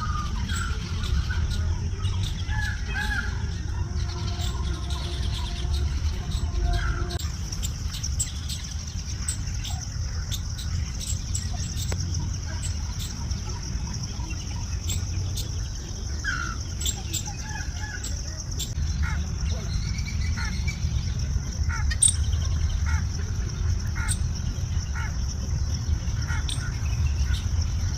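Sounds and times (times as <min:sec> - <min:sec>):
birds chirping: 0:00.0 - 0:27.9
constant low rumble: 0:00.0 - 0:27.9.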